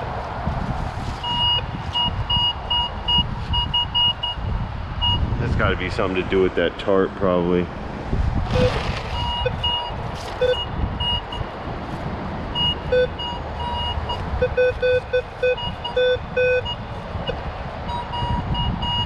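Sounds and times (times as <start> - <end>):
wind buffeting microphone: 0.0 - 19.0
metal detector beeps: 1.2 - 4.4, 5.0 - 5.2, 8.6 - 11.5, 12.6 - 16.8, 17.9 - 19.0.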